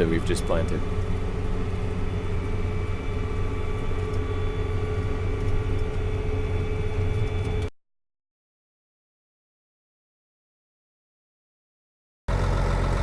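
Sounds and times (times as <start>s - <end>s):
tractor engine running: 0.0s - 7.7s, 12.3s - 13.0s.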